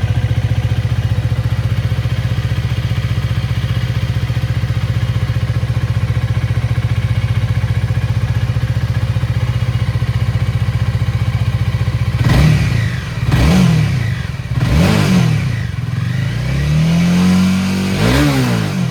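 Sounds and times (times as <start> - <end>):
motorcycle engine idling and revving: 0.0 - 18.9.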